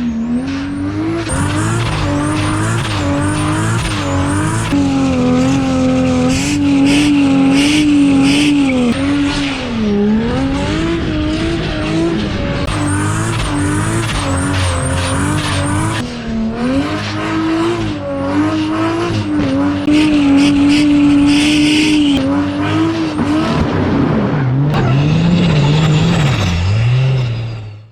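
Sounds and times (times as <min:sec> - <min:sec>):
car engine revving high: 0:00.0 - 0:27.7
tyres squealing: 0:01.2 - 0:09.6, 0:12.7 - 0:16.0.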